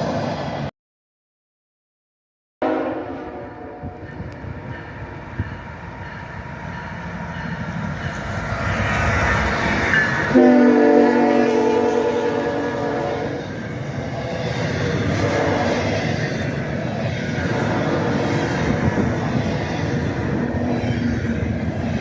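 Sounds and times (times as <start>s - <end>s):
train engine and wheel rumble: 0.0s - 0.7s, 2.6s - 22.0s
locomotive air horn: 2.6s - 4.0s, 10.3s - 13.4s, 15.1s - 15.8s.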